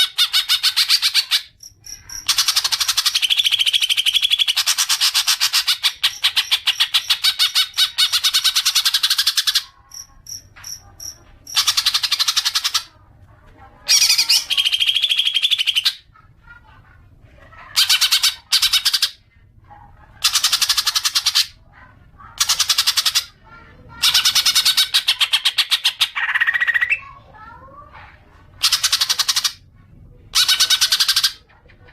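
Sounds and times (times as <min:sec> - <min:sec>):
bird chattering rapid notes: 0:00.0 - 0:12.9, 0:13.9 - 0:16.0, 0:17.7 - 0:19.2, 0:20.2 - 0:21.6, 0:22.4 - 0:27.1, 0:28.6 - 0:29.6, 0:30.3 - 0:31.9.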